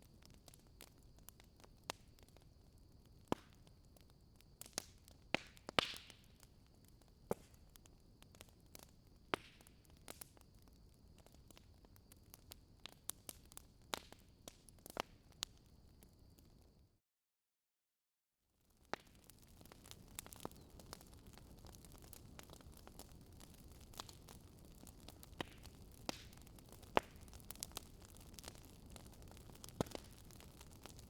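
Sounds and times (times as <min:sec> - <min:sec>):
wood fire crackling: 0:00.0 - 0:16.6, 0:18.7 - 0:31.0.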